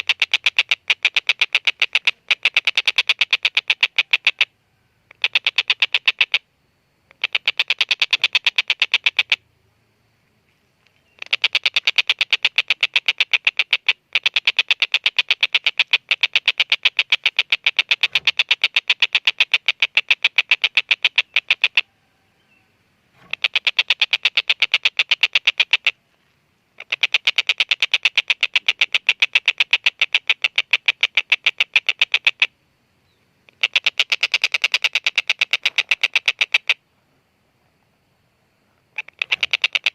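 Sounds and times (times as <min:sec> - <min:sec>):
kingfisher cackling call: 0:15.7 - 0:26.0, 0:39.0 - 0:39.9.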